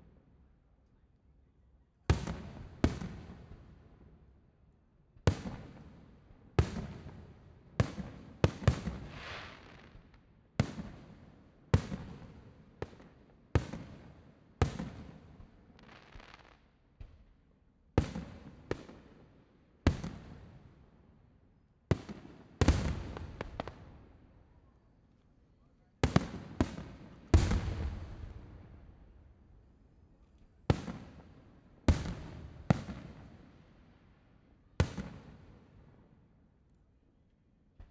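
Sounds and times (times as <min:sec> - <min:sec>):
fireworks bursting with echo: 0:21.9 - 0:24.1, 0:26.0 - 0:29.6.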